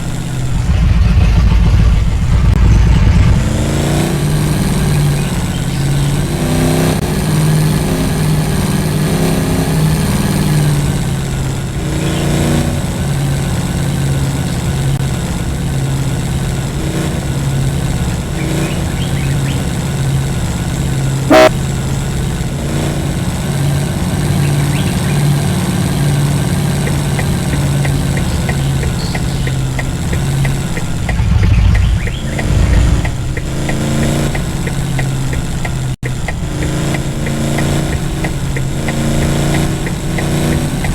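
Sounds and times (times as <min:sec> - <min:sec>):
heavy low thumps: 0:00.0 - 0:04.6, 0:27.0 - 0:37.3
vehicle engine under load: 0:00.0 - 0:40.9.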